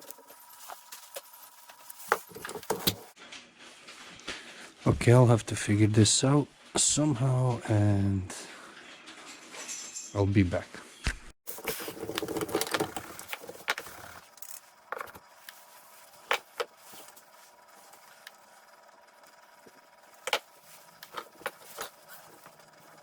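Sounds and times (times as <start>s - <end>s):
rustling clatter: 11.5s - 23.0s.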